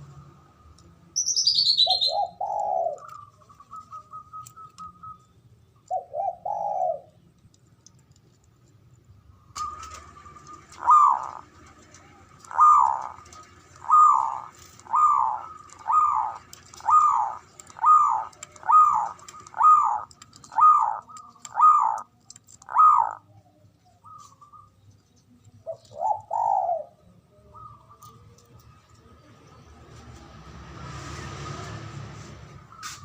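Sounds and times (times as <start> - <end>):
dove cooing: 1.4 - 5.2, 5.9 - 7.2, 9.6 - 23.4, 25.6 - 28.3.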